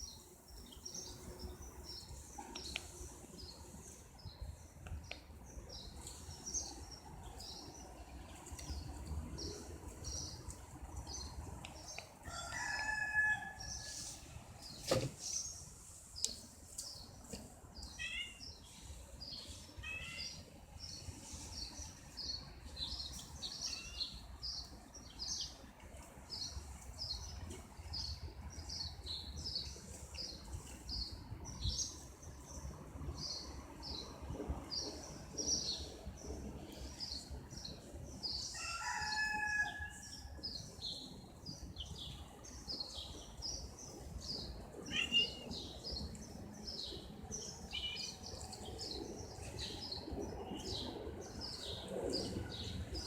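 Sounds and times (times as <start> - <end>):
small birds chirping: 40.4 - 51.8.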